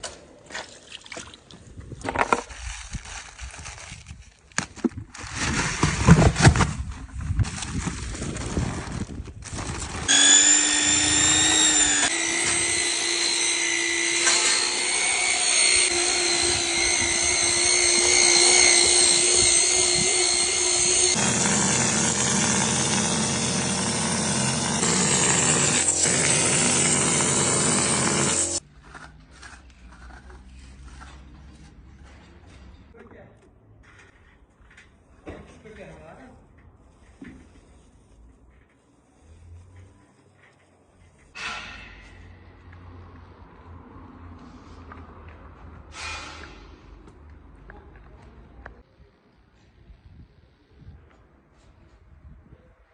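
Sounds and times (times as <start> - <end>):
knocks and scraping: 1.8 - 33.0
power tool whining: 9.9 - 28.6.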